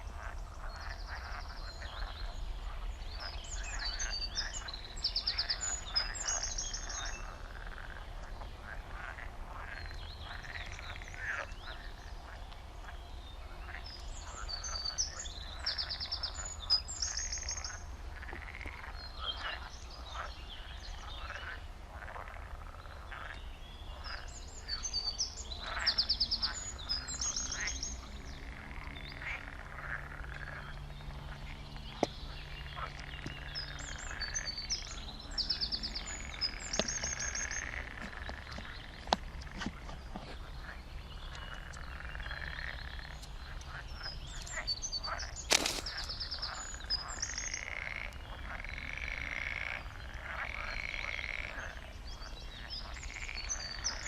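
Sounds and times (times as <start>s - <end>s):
frogs croaking: 0.0s - 54.0s
songbird trilling: 32.0s - 49.9s.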